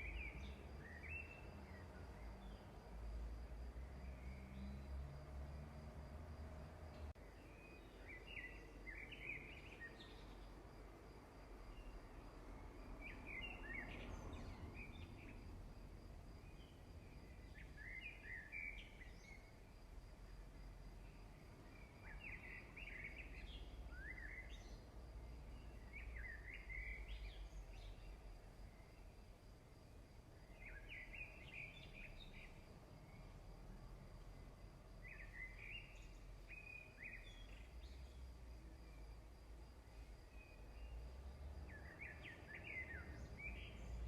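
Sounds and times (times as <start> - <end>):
faint bird chirping: 0.0 - 44.0.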